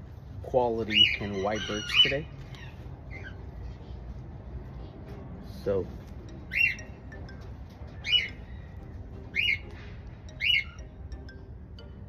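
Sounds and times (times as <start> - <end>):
bird squawking: 0.8 - 3.4, 6.5 - 7.0, 8.0 - 9.8, 10.4 - 10.8.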